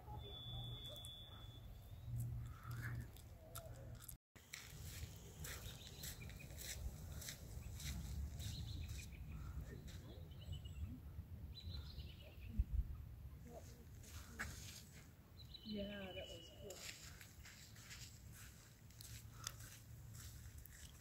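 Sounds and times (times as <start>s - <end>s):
faint bird chirps: 0.0s - 2.8s
wind rumble on microphone: 12.4s - 13.0s.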